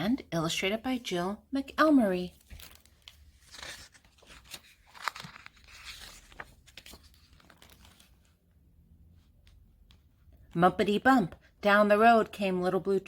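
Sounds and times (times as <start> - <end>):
paper pages rustling: 2.2 - 8.4
light clicks of book handling: 2.4 - 8.4.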